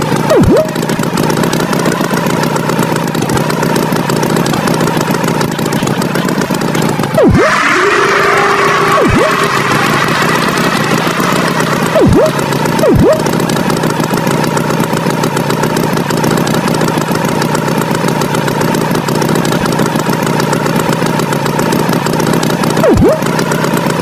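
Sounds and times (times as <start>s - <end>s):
swooping pitch dives: 0.0s - 1.0s, 7.2s - 13.6s, 22.8s - 23.4s
cartoon tractor engine: 0.0s - 24.0s.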